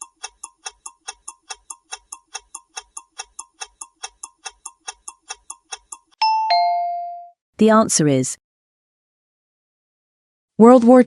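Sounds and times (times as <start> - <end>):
clock ticking quickly: 0.0 - 6.2.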